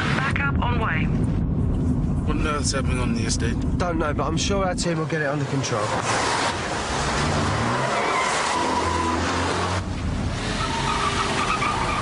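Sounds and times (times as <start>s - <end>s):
tyres squealing: 5.1s - 9.8s, 10.4s - 12.0s
car engines running hard: 5.4s - 12.0s.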